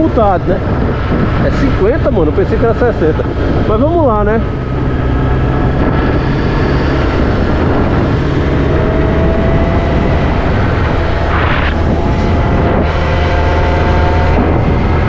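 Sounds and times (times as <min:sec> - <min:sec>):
road noise: 0:00.0 - 0:15.0
vehicle engine: 0:00.0 - 0:15.0
faint steady whine: 0:01.4 - 0:07.2.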